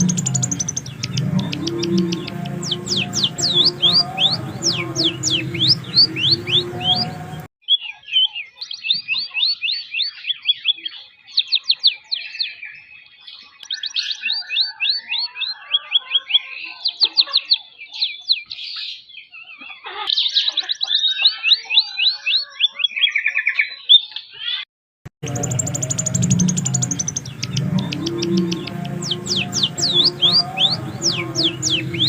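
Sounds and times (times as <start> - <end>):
bird singing chirps and trills: 0.0 - 17.0, 25.2 - 32.0.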